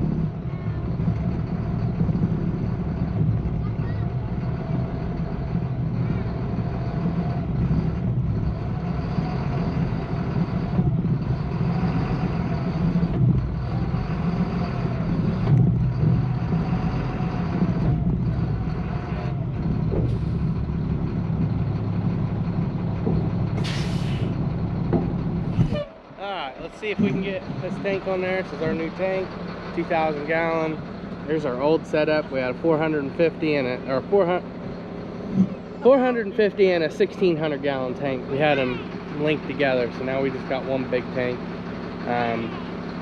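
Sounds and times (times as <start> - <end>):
truck engine running: 0.0 - 43.0
air hissing: 23.6 - 24.4.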